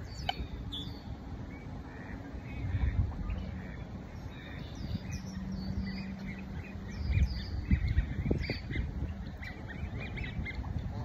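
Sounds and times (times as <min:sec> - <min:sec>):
small birds chirping: 0:00.0 - 0:11.0
wind rumble on microphone: 0:00.0 - 0:11.0.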